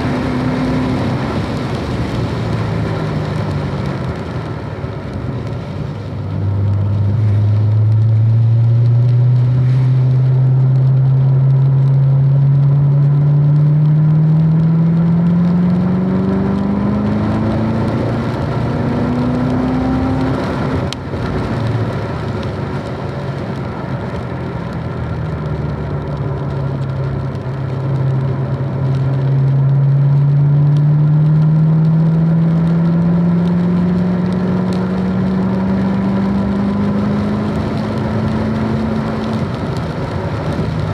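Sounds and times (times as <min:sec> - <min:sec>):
car engine revving: 0:00.0 - 0:05.6, 0:06.2 - 0:40.9.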